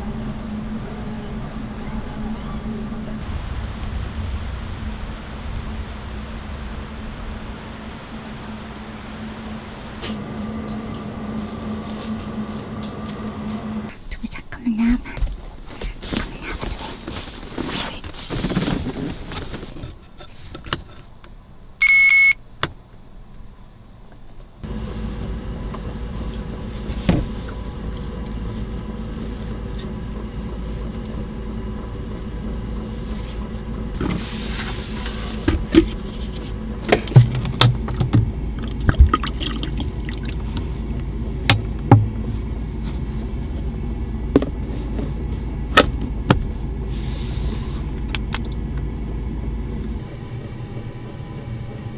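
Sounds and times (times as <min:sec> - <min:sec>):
steady low hum: 0:00.0 - 0:18.1, 0:24.5 - 0:51.9
short electronic beep: 0:21.8 - 0:22.4
knocks and clunks: 0:26.5 - 0:28.3, 0:35.4 - 0:43.0, 0:44.2 - 0:46.8.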